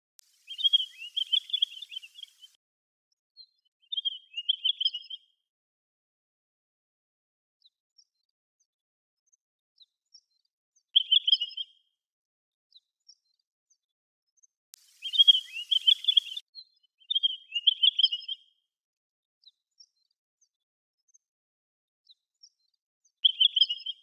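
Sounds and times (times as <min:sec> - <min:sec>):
faint high chirps: 0:00.2 - 0:02.6, 0:14.8 - 0:16.4
birds warbling calls: 0:00.3 - 0:02.6, 0:14.8 - 0:16.4.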